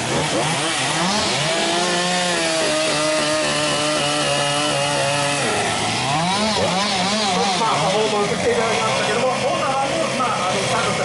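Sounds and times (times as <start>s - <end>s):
chainsaw engine revving: 0.0s - 11.0s.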